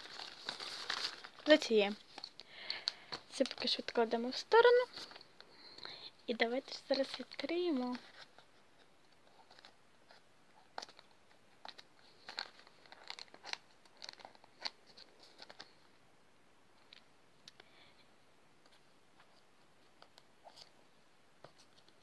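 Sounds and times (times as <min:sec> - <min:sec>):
packaging crinkling and tearing: 0:00.0 - 0:03.9, 0:09.2 - 0:15.8.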